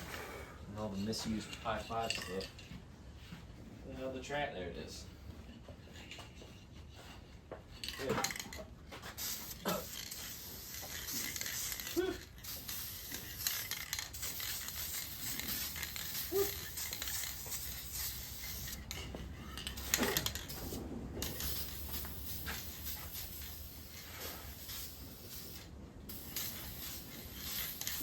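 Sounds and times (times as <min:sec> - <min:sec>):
spray can hissing: 0:08.0 - 0:28.0.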